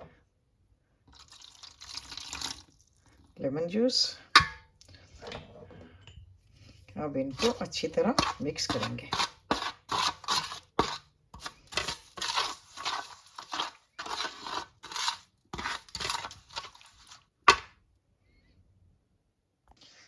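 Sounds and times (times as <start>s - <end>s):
spoon stirring marinade in bowl: 7.2s - 17.7s.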